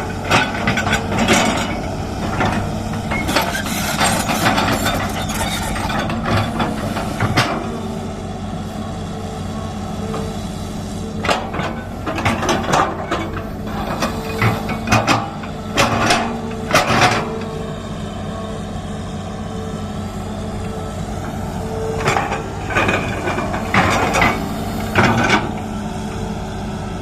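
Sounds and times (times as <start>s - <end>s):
excavator diesel engine running: 0.0s - 27.0s
metallic clanks and knocks: 11.2s - 17.4s, 22.0s - 25.7s.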